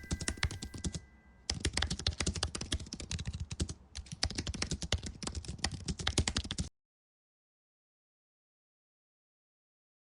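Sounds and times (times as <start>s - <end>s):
keyboard typing: 0.0s - 6.7s.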